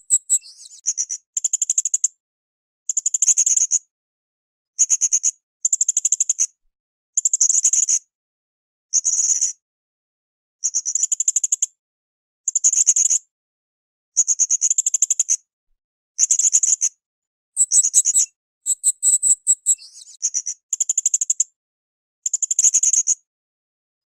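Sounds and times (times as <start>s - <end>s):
parrot high-pitched trills: 17.6s - 19.8s.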